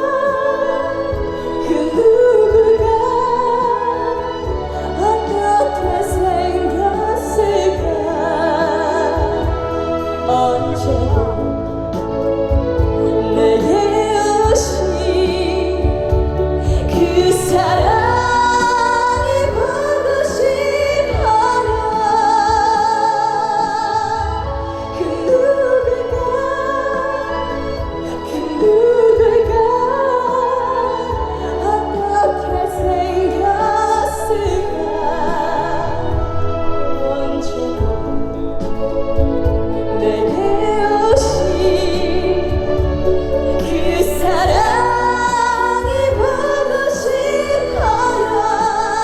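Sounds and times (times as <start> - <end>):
instrumental accompaniment with beat: 0.0 - 49.0
woman singing with vibrato: 0.0 - 49.0.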